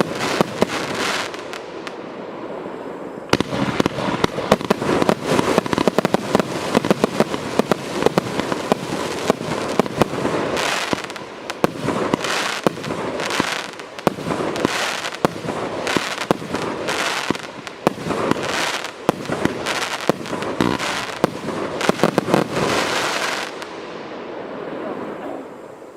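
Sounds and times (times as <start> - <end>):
firework bursts rushing: 0.0 - 2.0, 2.8 - 24.2
firework cake popping: 3.3 - 23.6.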